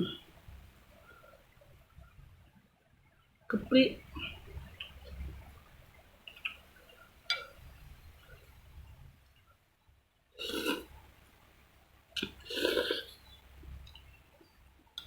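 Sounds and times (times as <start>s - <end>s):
person burping: 10.4s - 10.9s, 12.2s - 13.2s.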